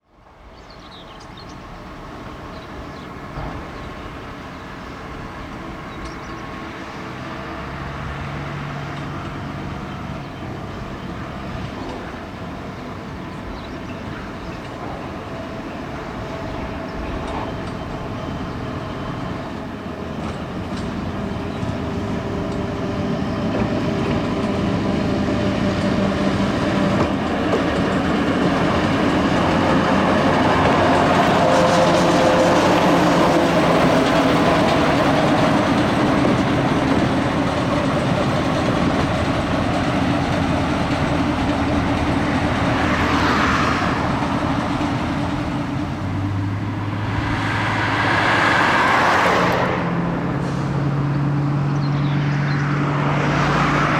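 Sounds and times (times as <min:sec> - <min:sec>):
locomotive diesel engine running: 0:00.9 - 0:52.1.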